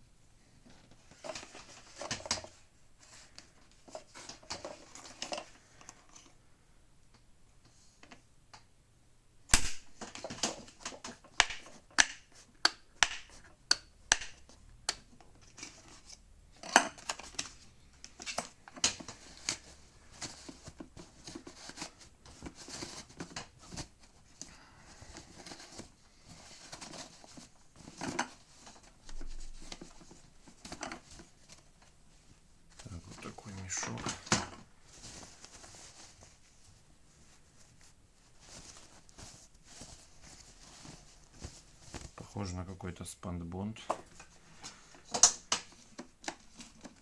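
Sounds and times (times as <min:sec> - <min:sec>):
plastic parts clicking and knocking: 0:00.7 - 0:02.6, 0:09.5 - 0:24.5, 0:25.2 - 0:31.6, 0:33.7 - 0:35.7, 0:45.0 - 0:47.0
packaging crinkling and rustling: 0:15.2 - 0:42.4.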